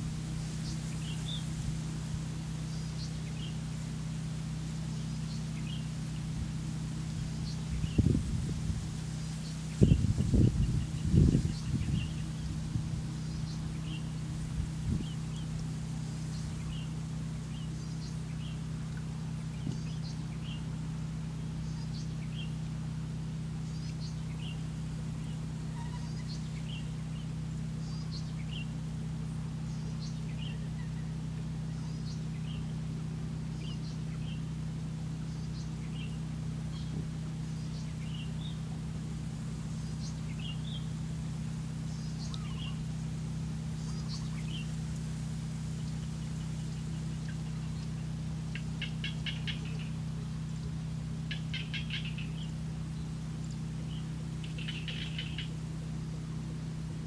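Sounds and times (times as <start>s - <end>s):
steady low hum: 0.0s - 57.0s
small bird chirping: 0.5s - 1.6s, 9.2s - 14.2s, 23.6s - 28.8s, 29.6s - 32.8s, 33.5s - 34.5s, 35.2s - 38.8s, 39.8s - 41.0s, 41.8s - 42.9s, 43.7s - 45.1s, 45.7s - 55.7s.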